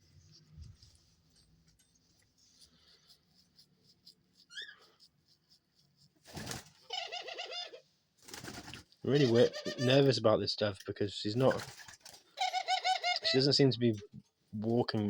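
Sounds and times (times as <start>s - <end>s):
rustling: 0.0s - 7.5s
doves calling: 2.5s - 5.6s, 6.3s - 10.2s, 11.4s - 14.0s.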